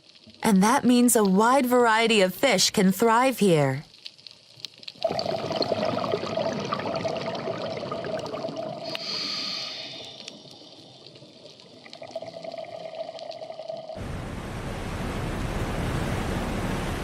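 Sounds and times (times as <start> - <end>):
water bubbling and trickling: 4.1 - 14.0.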